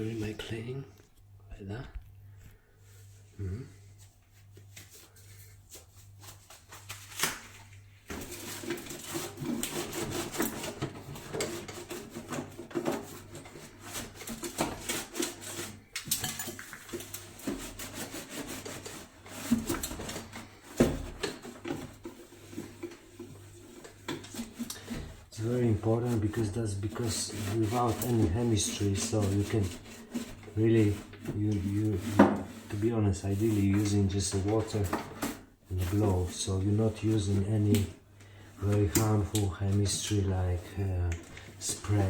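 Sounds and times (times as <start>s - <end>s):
cloth rubbing inside microwave: 16.8s - 38.0s, 38.6s - 42.0s.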